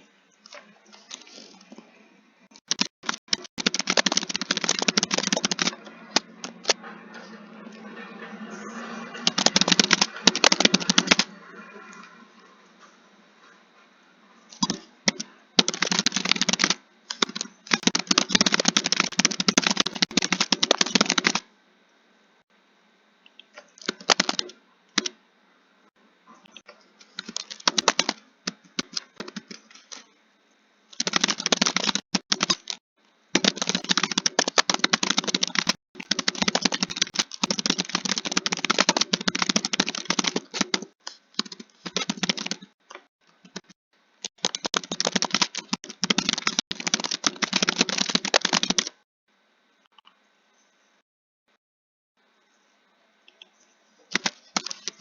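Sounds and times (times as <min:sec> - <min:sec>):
keyboard typing: 0:02.6 - 0:12.2, 0:14.5 - 0:21.5, 0:23.8 - 0:25.2, 0:26.5 - 0:30.0, 0:31.0 - 0:32.8, 0:33.4 - 0:49.0, 0:54.1 - 0:55.0.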